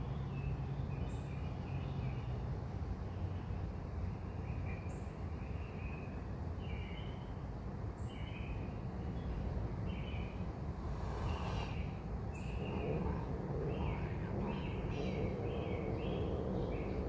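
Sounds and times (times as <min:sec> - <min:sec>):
birds chirping: 0:09.2 - 0:17.0
low rumble: 0:10.3 - 0:17.0.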